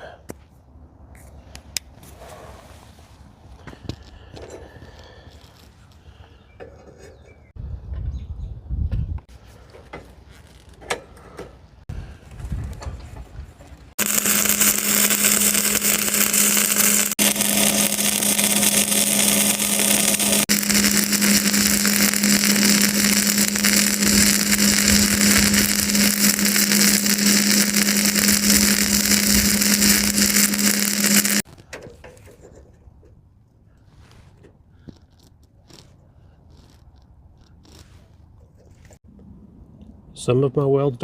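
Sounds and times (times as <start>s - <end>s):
angle grinder grinding metal: 14.0s - 31.5s.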